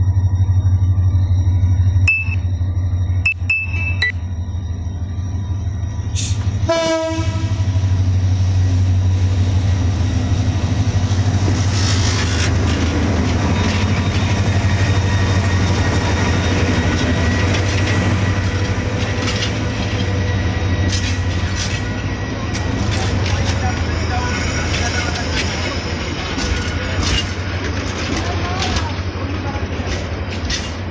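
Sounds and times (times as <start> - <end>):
locomotive low hum: 0.0 - 30.9
train coaches clattering on rails: 6.1 - 30.9
train horn blast: 6.2 - 8.0.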